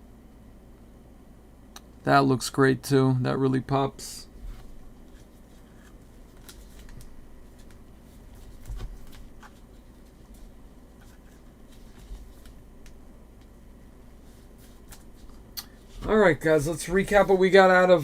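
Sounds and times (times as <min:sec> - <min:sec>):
trading cards flipped by hand: 0:05.0 - 0:09.6, 0:14.6 - 0:15.9.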